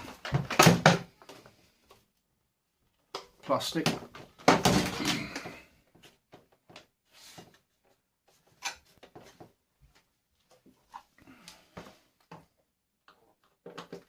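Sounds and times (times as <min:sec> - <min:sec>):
loud plastic clatter: 0:00.0 - 0:01.2, 0:03.9 - 0:05.4
small plastic clicks and knocks: 0:12.2 - 0:14.0.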